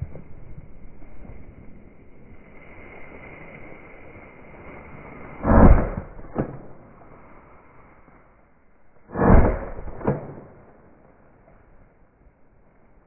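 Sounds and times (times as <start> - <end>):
sharp crack: 5.4 - 7.1, 9.0 - 11.5
shotgun shots: 9.1 - 10.6.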